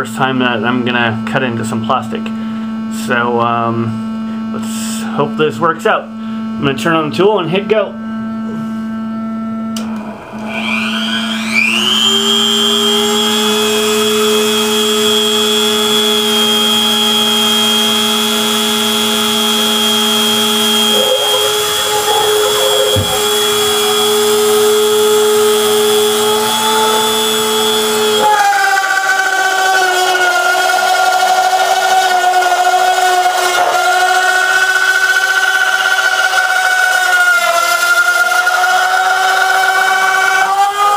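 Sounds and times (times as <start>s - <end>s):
electrical hum: 0.0s - 37.2s
router spinning up whine: 9.1s - 40.9s.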